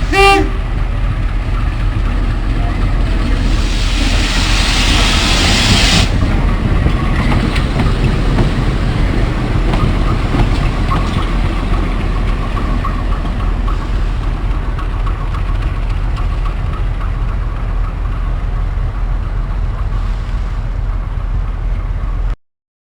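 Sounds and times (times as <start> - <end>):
train rumbling on rails: 0.0 - 22.4
loud hiss: 3.3 - 6.2.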